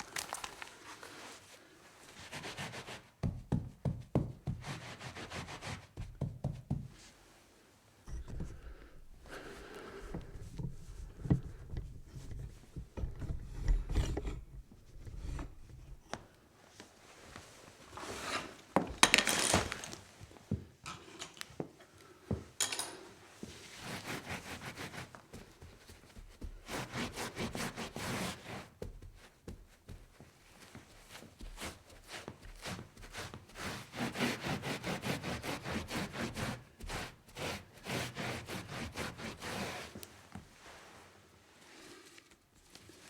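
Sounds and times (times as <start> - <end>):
rubbing and scraping: 8.1 - 16.3, 23.5 - 28.8, 30.7 - 43.0.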